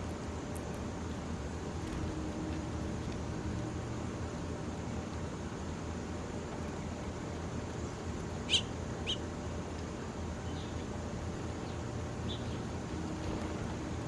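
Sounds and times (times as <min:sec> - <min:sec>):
small bird chirping: 0:08.5 - 0:09.2.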